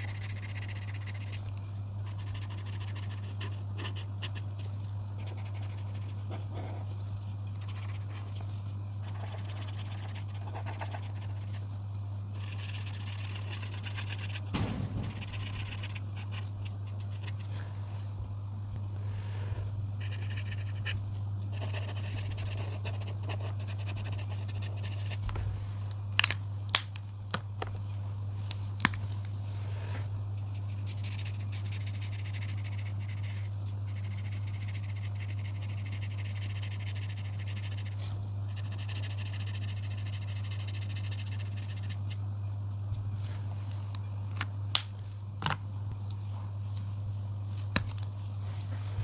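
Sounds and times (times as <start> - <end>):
coloring tool scratching paper: 0.0 - 11.7, 12.3 - 14.6, 20.0 - 25.2, 30.5 - 42.2
steady low hum: 0.0 - 49.0.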